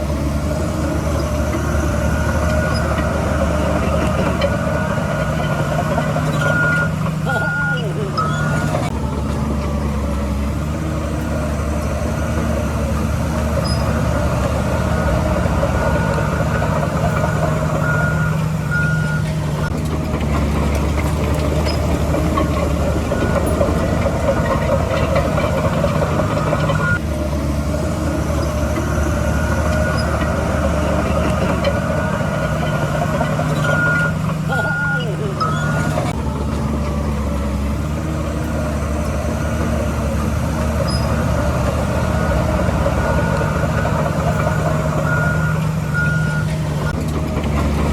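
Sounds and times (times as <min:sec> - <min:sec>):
heavy diesel machinery running: 0:00.0 - 0:47.9
reversing alarm beeps: 0:01.5 - 0:08.9, 0:13.6 - 0:19.7, 0:21.6 - 0:27.0, 0:28.5 - 0:36.2, 0:40.8 - 0:46.9.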